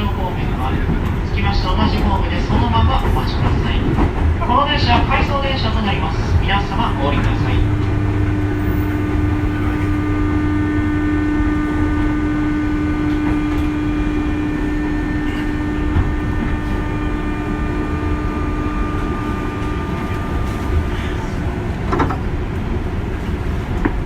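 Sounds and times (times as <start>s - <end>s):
train equipment hum: 0.0s - 24.0s
low rumble: 2.3s - 24.0s
held tone: 6.7s - 21.4s.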